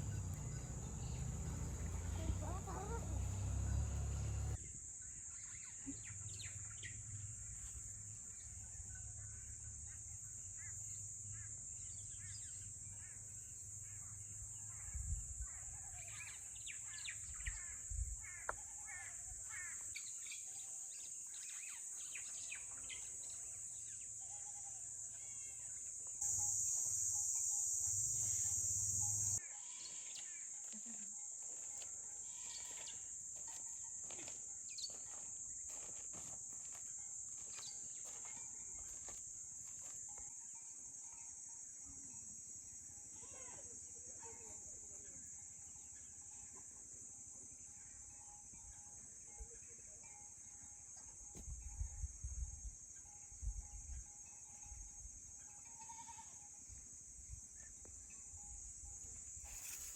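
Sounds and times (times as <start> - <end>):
birds chirping and calling: 0.0 - 4.6
high-pitched insect drone: 22.1 - 35.2, 58.1 - 59.9.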